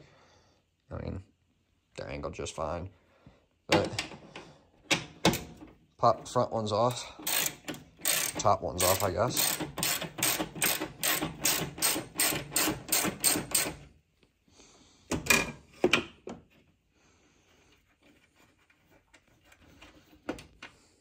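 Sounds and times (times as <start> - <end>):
ratchet clicking: 6.9 - 13.8.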